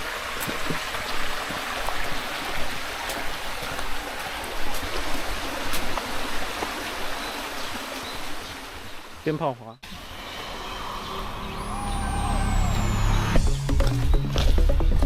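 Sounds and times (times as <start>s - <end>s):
small water splashes: 0.0s - 9.2s
stream water rushing: 0.0s - 13.5s.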